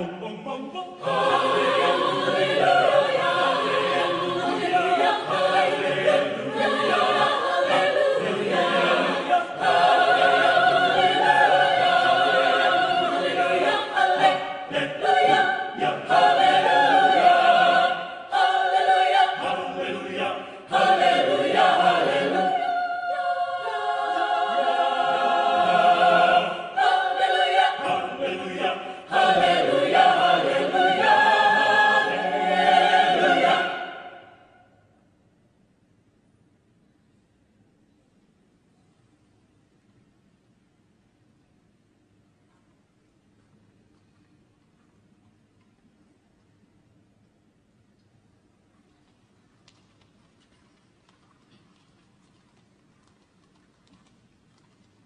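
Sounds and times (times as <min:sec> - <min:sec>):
mixed choir singing: 0:00.0 - 0:34.7.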